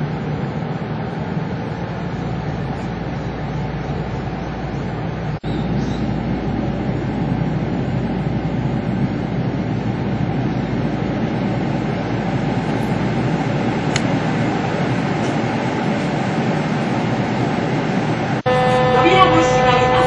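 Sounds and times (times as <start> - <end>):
train rumbling: 0.0 - 20.0
brief high tone: 18.5 - 20.0.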